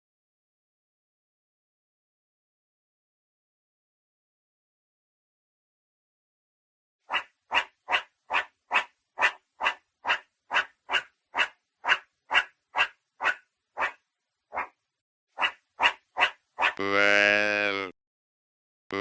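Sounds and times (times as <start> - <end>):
animal making short harsh calls: 15.4 - 17.9.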